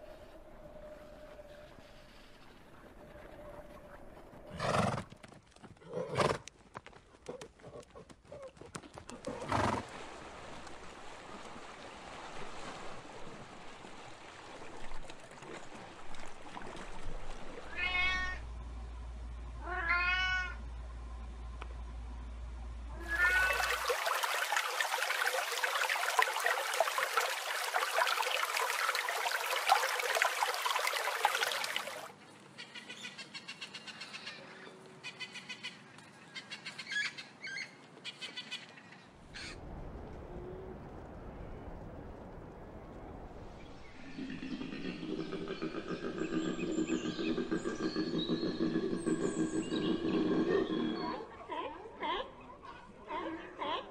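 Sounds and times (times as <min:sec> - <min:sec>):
cat meowing: 0:17.7 - 0:18.4, 0:19.6 - 0:20.6, 0:23.0 - 0:23.6.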